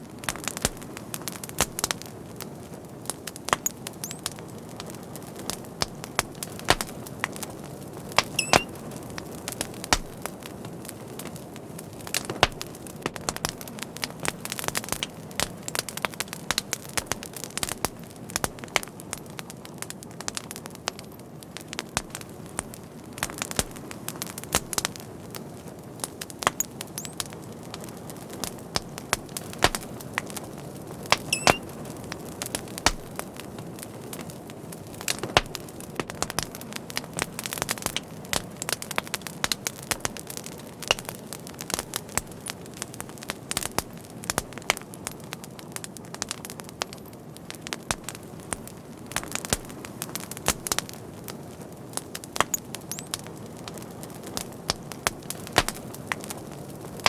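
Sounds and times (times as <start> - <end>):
wood fire crackling: 0.0 - 57.0
loud wood snaps: 6.7 - 6.9, 9.9 - 10.2, 29.6 - 29.9, 31.1 - 31.6, 32.9 - 33.2, 52.4 - 53.1, 55.6 - 55.8
faint high whistle: 8.4 - 8.7, 31.3 - 31.6.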